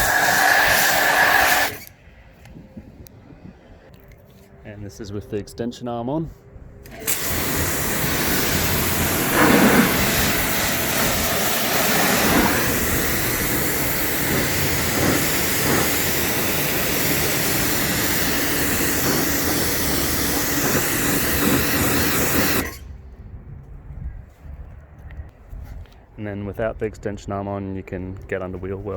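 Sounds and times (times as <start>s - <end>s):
pressure washer spraying: 0.0s - 1.9s, 6.9s - 22.8s.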